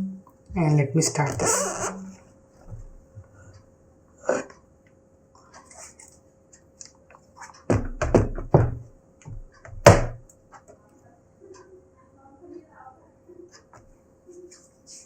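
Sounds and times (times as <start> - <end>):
knocks on a laptop: 7.7 - 10.2.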